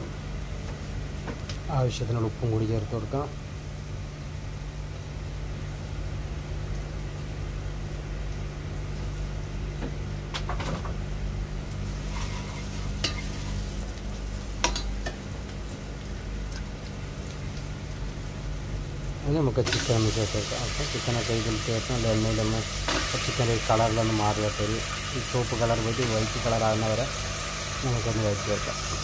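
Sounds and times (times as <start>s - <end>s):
food sizzling in hot oil: 11.4s - 29.0s.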